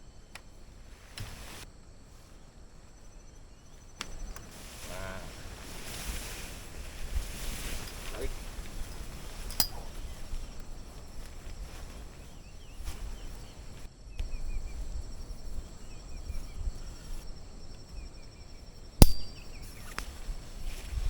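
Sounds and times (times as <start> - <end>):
sharp click: 19.0 - 19.4.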